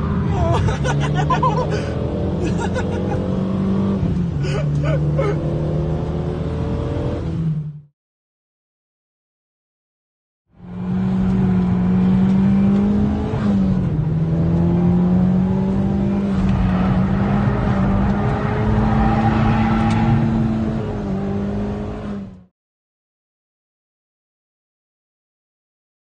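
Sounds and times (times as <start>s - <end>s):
car engine from inside cabin: 0.0s - 7.8s, 10.6s - 22.5s.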